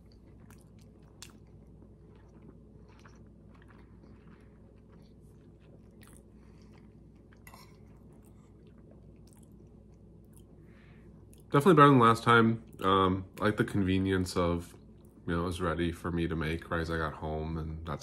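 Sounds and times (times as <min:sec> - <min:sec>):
person chewing food: 0:00.0 - 0:11.5.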